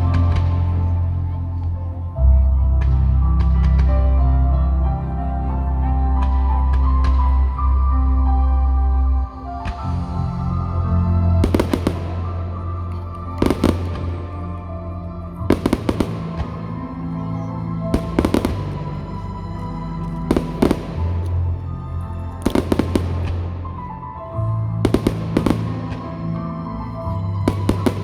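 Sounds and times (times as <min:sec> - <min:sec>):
music playing: 0:00.0 - 0:28.0
fireworks bangs: 0:11.4 - 0:14.4, 0:15.5 - 0:19.0, 0:20.2 - 0:21.5, 0:22.4 - 0:24.0, 0:24.8 - 0:26.2, 0:27.4 - 0:28.0.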